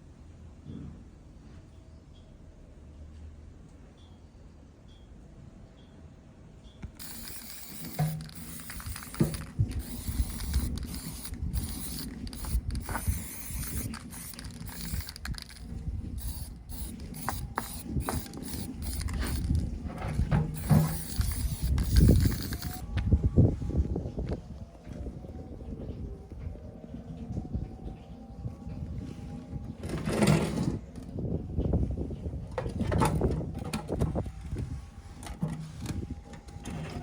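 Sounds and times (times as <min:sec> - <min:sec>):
metal parts clicking and rattling: 0:06.9 - 0:22.9.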